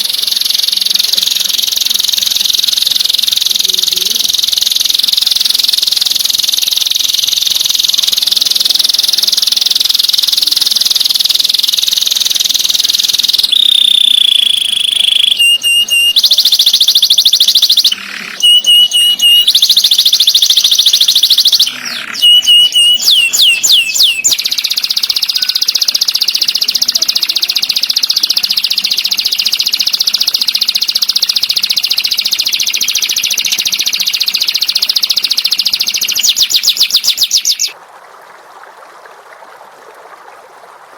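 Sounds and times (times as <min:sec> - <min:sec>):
recorded songbird trilling: 0:00.0 - 0:37.8.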